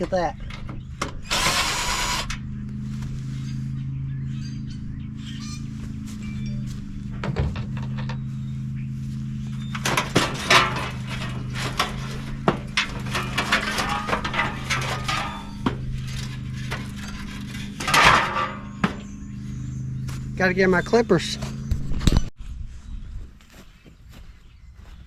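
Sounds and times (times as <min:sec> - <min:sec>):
steady low hum: 0:00.0 - 0:25.0
metal scrap clinking: 0:09.5 - 0:19.4.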